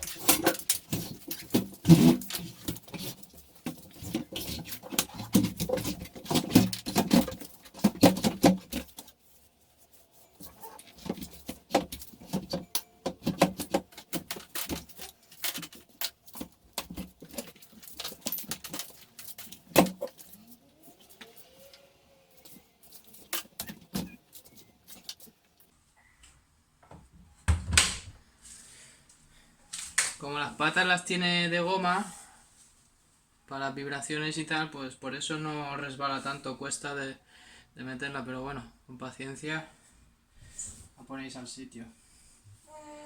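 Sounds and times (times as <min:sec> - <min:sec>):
washing machine knocking and scraping: 0:00.0 - 0:09.0.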